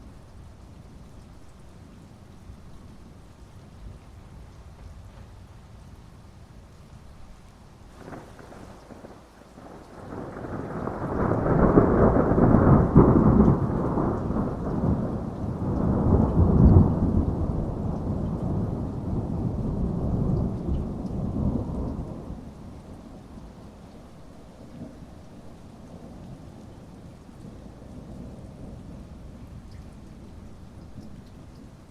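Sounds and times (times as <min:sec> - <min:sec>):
steady rain: 0:00.0 - 0:31.9
rolling thunder: 0:07.9 - 0:23.5.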